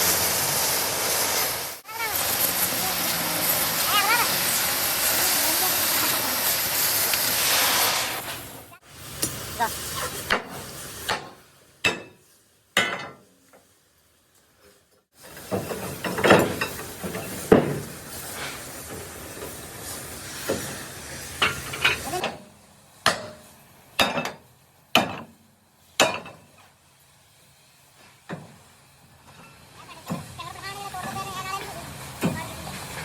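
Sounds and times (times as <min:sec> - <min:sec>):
hissing workshop noise: 0:00.0 - 0:33.0.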